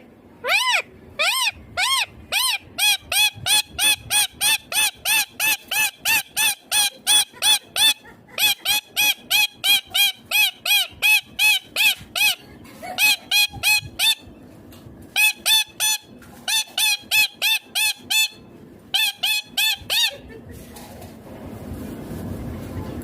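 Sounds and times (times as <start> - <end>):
parakeet shrill calls: 0.4 - 12.4, 13.0 - 14.3, 15.1 - 20.1.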